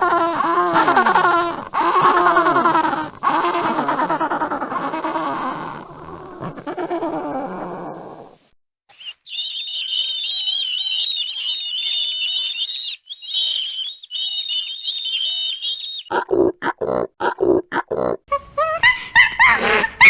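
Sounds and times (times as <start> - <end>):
animal squealing: 0.0 - 7.9, 9.0 - 16.3.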